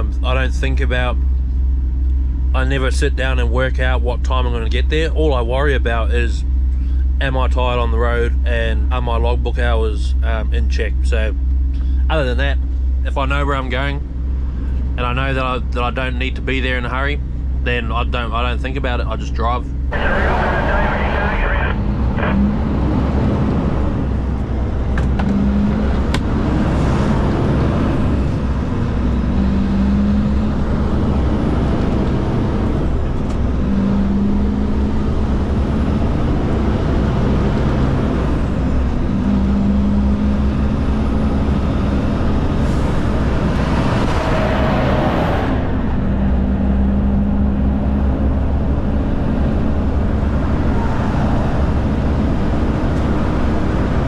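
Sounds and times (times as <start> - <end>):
diesel engine running: 0.0 - 54.0
road and tyre noise: 0.0 - 54.0.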